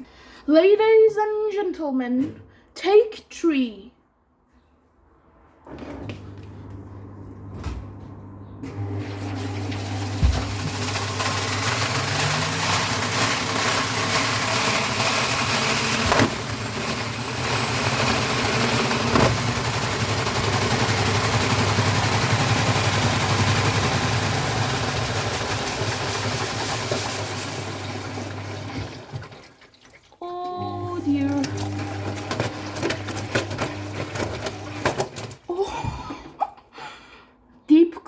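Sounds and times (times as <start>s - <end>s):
washing machine spinning: 6.7s - 35.4s
sharp knocks in washing machine: 10.0s - 11.0s, 18.0s - 21.5s.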